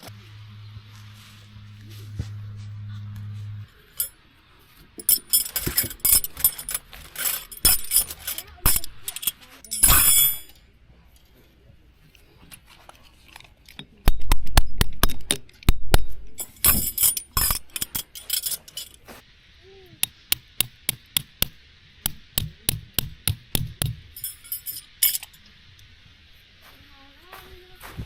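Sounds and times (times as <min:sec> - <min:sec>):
hard objects clinking and knocking: 0:05.0 - 0:10.6, 0:13.7 - 0:19.0, 0:22.1 - 0:25.4
steady hiss: 0:16.2 - 0:28.0.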